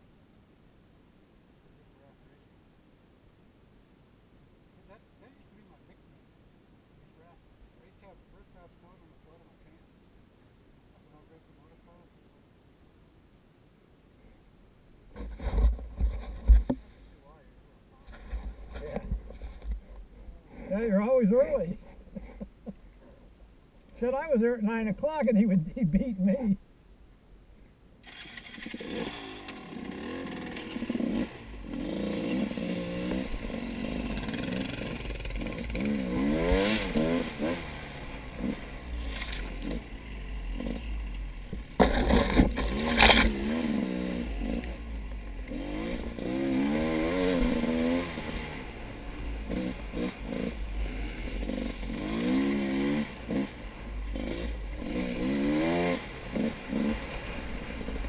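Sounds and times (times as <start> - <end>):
motorcycle engine revving: 28.0 - 58.0.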